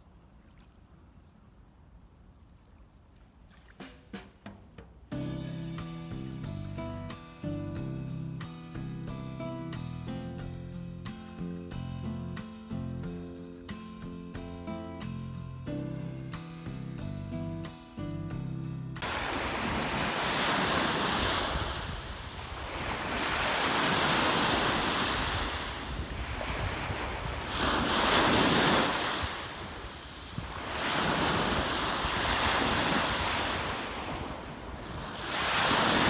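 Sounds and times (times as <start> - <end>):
waves washing onto shore: 19.0 - 36.0
wind buffeting microphone: 19.0 - 36.0.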